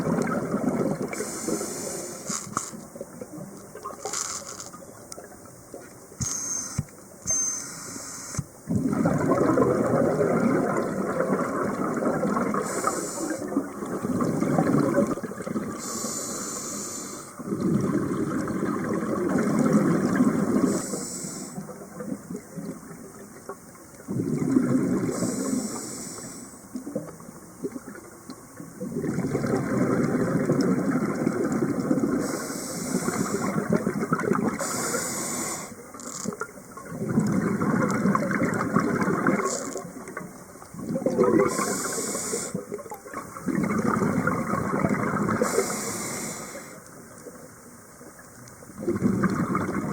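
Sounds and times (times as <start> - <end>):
exhaled bubbles rushing: 0.0 - 1.6, 8.7 - 15.9, 17.4 - 20.9, 24.0 - 25.4, 28.8 - 34.6, 36.4 - 45.7, 48.7 - 49.9
regulator inhalation hiss: 1.1 - 2.7, 6.2 - 8.4, 12.6 - 13.5, 15.8 - 17.4, 20.6 - 21.6, 25.1 - 26.6, 32.2 - 33.6, 34.6 - 35.8, 41.5 - 42.6, 45.4 - 46.8.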